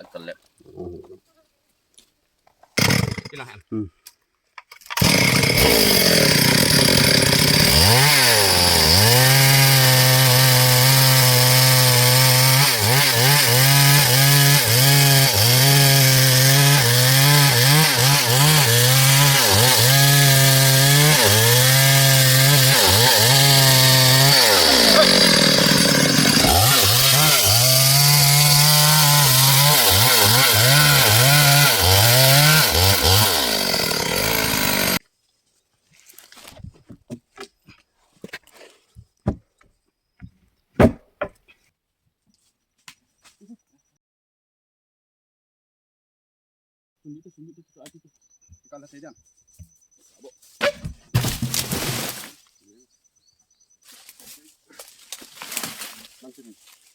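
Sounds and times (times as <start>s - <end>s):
chainsaw cutting a log: 2.8s - 3.4s, 4.9s - 35.0s, 51.2s - 52.2s.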